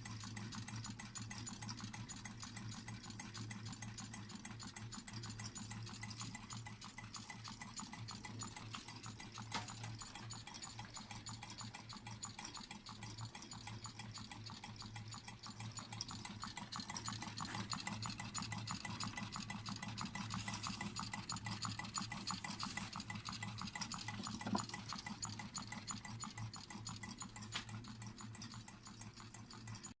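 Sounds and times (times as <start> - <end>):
engine mechanical clatter: 0.0 - 30.0.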